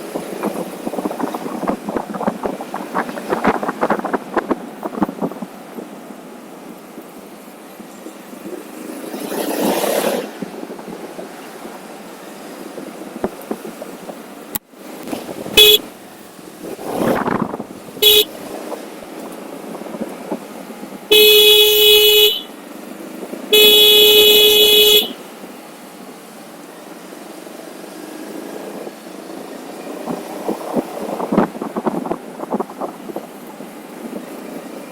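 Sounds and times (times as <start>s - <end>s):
wind rush: 0.0s - 6.7s, 15.0s - 21.2s, 28.6s - 34.9s
traffic passing: 0.0s - 34.9s
vehicle horn honking: 15.5s - 15.9s, 18.0s - 18.4s, 21.1s - 22.6s, 23.5s - 25.3s.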